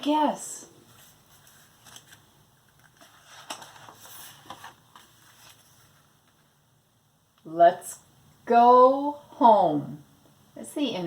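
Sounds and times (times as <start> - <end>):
picture book pages turning: 0.8 - 6.5.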